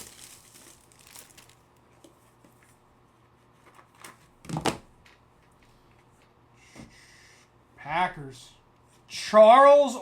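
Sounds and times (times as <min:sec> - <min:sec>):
rustling of cards and packaging: 0:00.0 - 0:02.1.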